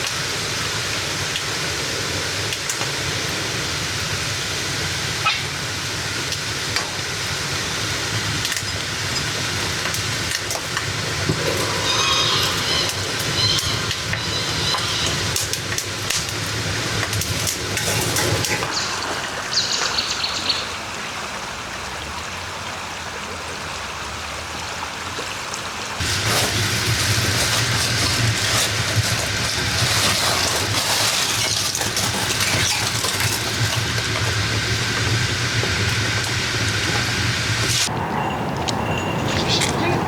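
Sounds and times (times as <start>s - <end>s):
dough sizzling in hot oil: 5.1s - 18.8s, 26.0s - 37.9s
crackles and pops: 8.4s - 18.7s, 26.0s - 37.9s.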